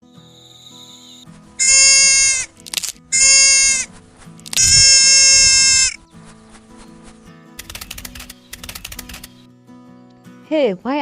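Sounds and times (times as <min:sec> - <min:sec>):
quiet background music: 0:00.0 - 0:11.0
high-pitched bleating calls: 0:01.6 - 0:02.5, 0:03.1 - 0:03.9, 0:04.5 - 0:06.0.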